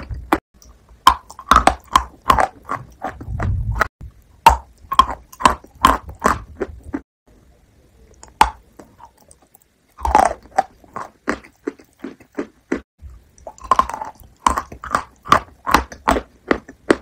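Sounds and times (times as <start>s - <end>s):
chewing soft food: 0.0s - 7.0s, 8.0s - 17.0s.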